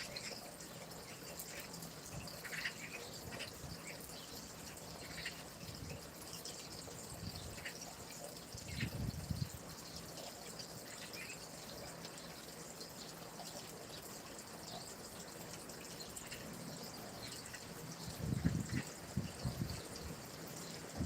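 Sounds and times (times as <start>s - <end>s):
stream trickling: 0.0s - 21.0s
water splashing and dripping: 0.0s - 21.0s.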